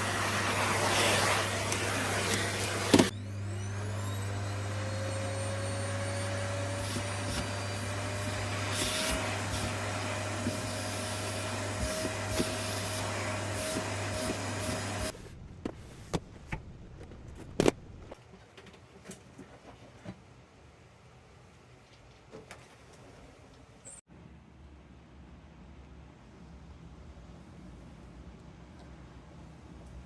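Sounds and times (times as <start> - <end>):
vacuum cleaner motor hum: 0.0 - 15.2.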